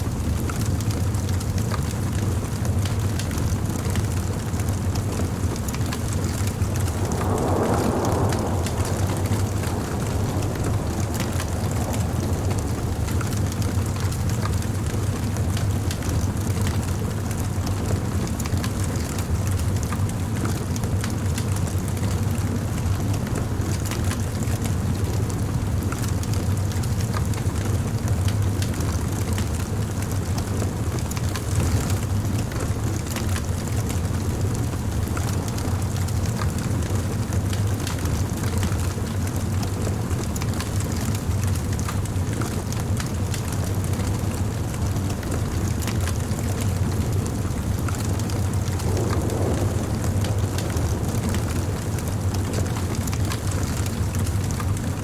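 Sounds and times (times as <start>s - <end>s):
fire low rumble: 0.0s - 55.0s
wood crackling and popping: 0.2s - 55.0s.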